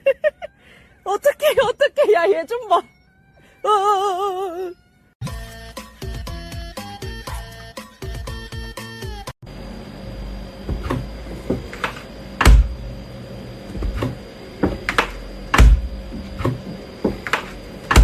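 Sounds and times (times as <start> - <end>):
heavy thumps with deep boom: 12.4 - 12.9, 15.5 - 16.0.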